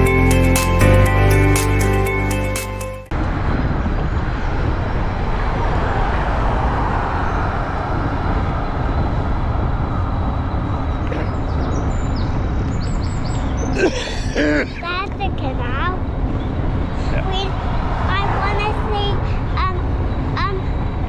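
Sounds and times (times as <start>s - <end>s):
music: 0.0s - 3.1s
outdoor rushing noise: 3.1s - 21.0s.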